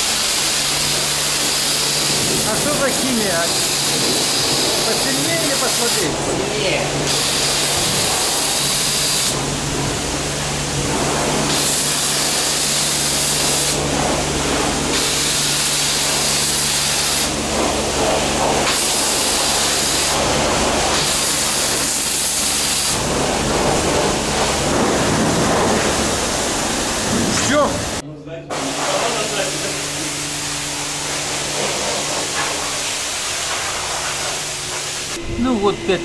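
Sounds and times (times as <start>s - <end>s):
low machine hum: 0.0s - 36.0s
spray nozzle hissing: 0.0s - 36.0s.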